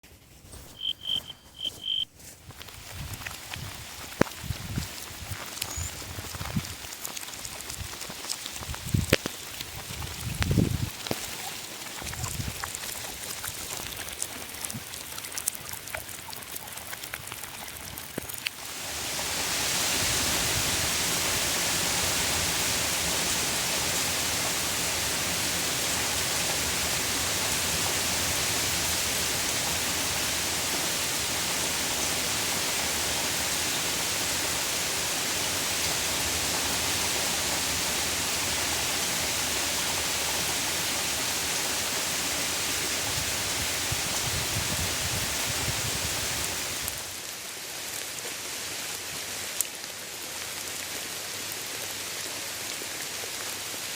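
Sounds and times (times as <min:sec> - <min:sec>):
heavy rain pouring: 0:17.8 - 0:48.0.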